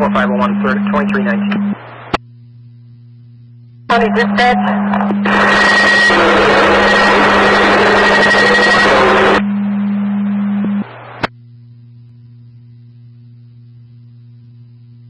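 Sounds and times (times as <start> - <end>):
radio static hiss: 0.0 - 2.2, 3.9 - 11.4
low electrical hum: 0.0 - 15.0
steady low radio tone: 0.0 - 15.0.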